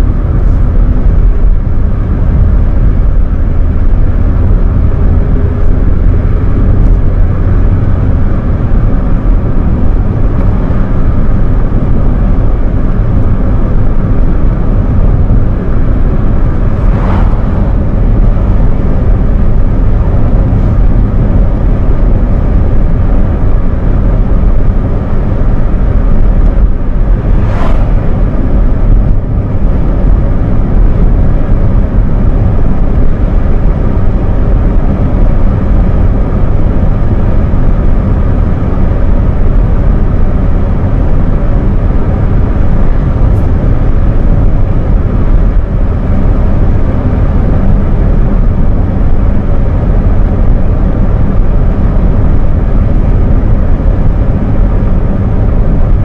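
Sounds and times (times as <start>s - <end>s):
car engine cruising: 0.0s - 56.0s
road and tyre rumble: 0.0s - 56.0s
brief whoosh: 16.3s - 18.2s, 26.7s - 28.7s.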